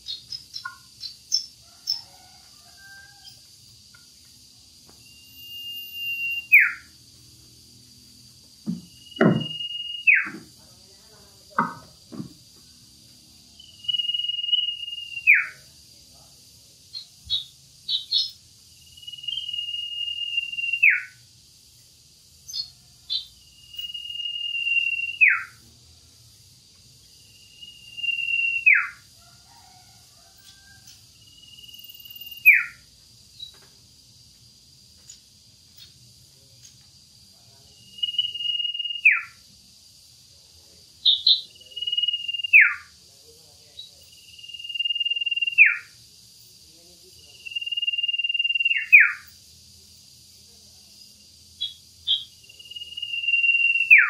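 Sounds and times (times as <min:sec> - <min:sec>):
bird whistle dropping in pitch: 0:05.0 - 0:06.8, 0:09.0 - 0:10.4
short high bird chirps: 0:05.0 - 0:06.8, 0:09.0 - 0:10.4.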